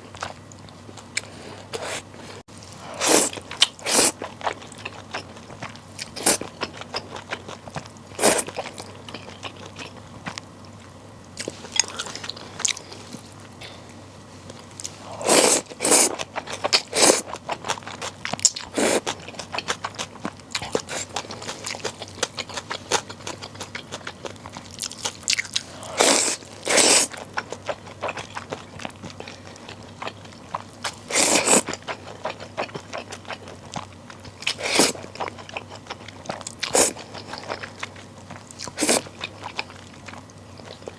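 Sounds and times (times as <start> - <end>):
loud slurping mouthfuls: 3.0 - 4.2, 25.9 - 27.2.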